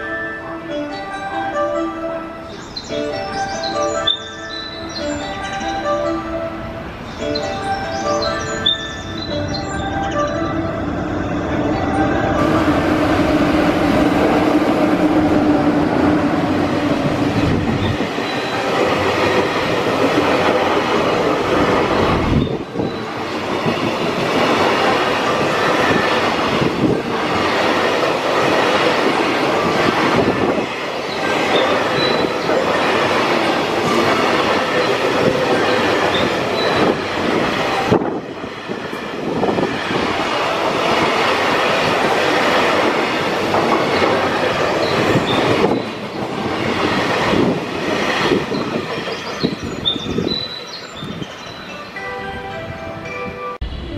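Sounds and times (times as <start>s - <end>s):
freight train wagons rolling by: 7.0s - 52.4s
wheels clattering on rails: 11.7s - 51.7s.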